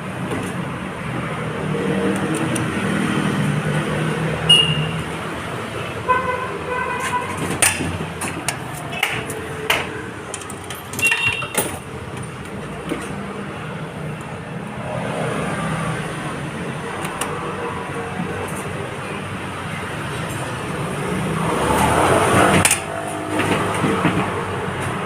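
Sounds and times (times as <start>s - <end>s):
knocks and clicks: 7.0s - 13.2s.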